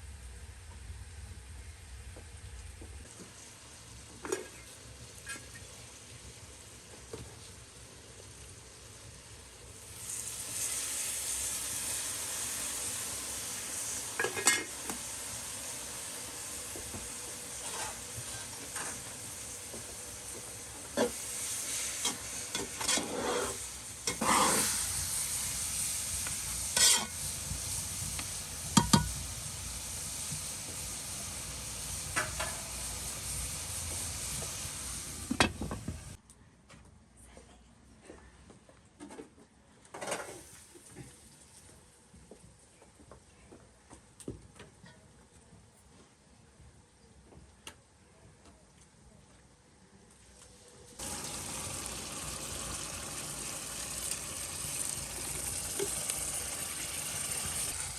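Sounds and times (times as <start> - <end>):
food sizzling in a pan: 3.0 - 36.2, 40.1 - 41.8, 50.5 - 57.9
utensil scraping a pan: 17.5 - 19.2, 21.0 - 25.0, 26.7 - 27.2
utensil knocking on a pan: 28.8 - 29.2.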